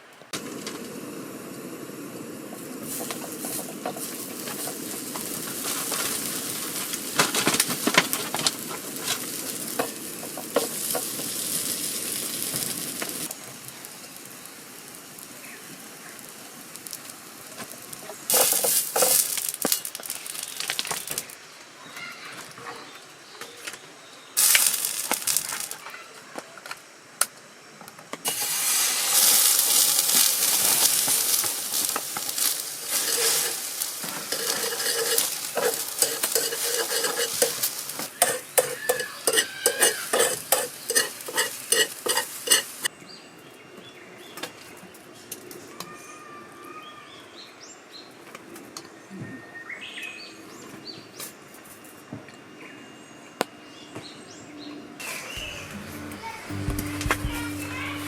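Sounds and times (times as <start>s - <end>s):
food sizzling in a frying pan: 0.4s - 21.4s, 24.4s - 26.0s, 28.2s - 42.9s, 55.1s - 58.0s
metal utensil scraping a pan: 18.3s - 19.5s, 28.3s - 42.9s.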